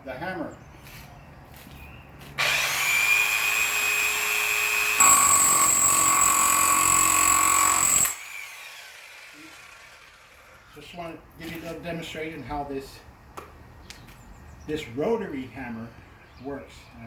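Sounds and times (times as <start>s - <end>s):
rotary hammer chipping concrete: 3.0s - 10.2s.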